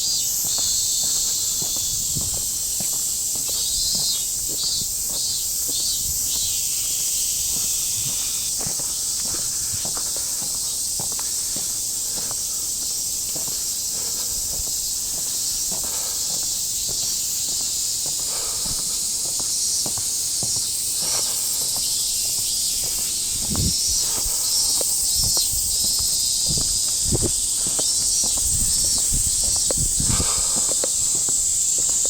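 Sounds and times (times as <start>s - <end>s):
insect chorus buzzing: 0.0s - 32.0s
footsteps walking: 0.4s - 6.0s, 7.4s - 32.0s.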